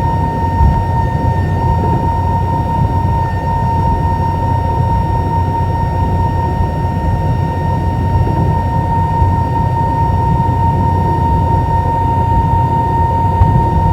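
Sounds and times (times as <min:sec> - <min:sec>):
engine and airflow rumble: 0:00.0 - 0:13.9
high whine: 0:00.0 - 0:13.9.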